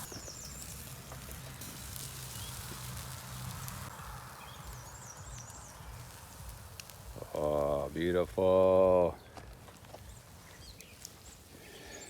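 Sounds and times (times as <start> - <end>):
light hiss: 0.0 - 8.8.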